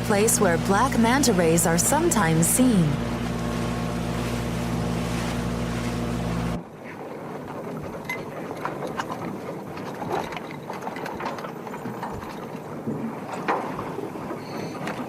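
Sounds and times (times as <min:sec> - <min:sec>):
water rushing: 0:00.0 - 0:06.8
boat engine running: 0:00.0 - 0:15.0.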